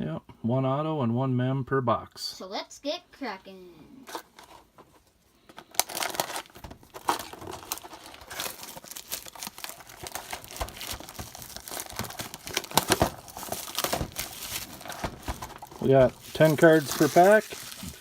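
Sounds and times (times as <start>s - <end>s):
plastic wrapping crinkling and tearing: 5.6s - 18.0s.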